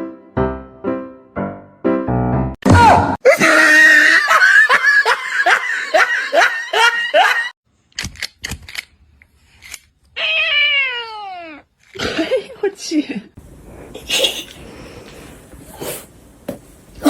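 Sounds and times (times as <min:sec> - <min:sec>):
person laughing hard: 0:03.2 - 0:07.6.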